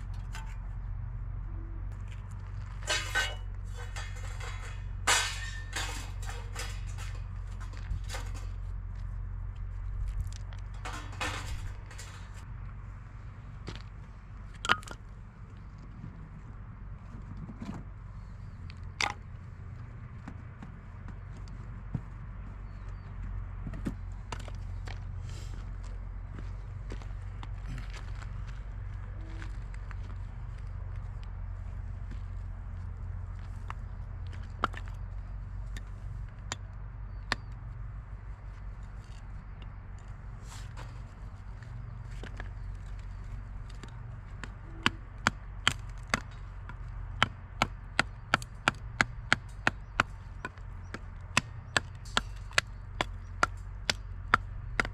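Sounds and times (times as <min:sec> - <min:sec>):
steady low hum: 0:00.0 - 0:54.9
steady low rumble: 0:00.0 - 0:54.9
sharp clicks and knocks: 0:10.1 - 0:12.4.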